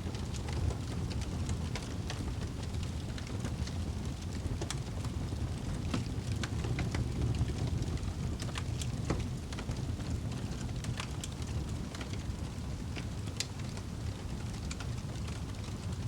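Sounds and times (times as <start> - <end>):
flames rumbling: 0.0 - 16.0
wood fire crackles and pops: 0.0 - 16.0.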